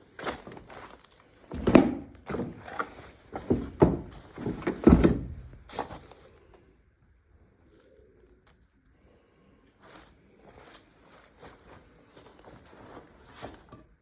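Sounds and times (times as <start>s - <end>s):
dull thumps and knocks: 1.5s - 5.9s.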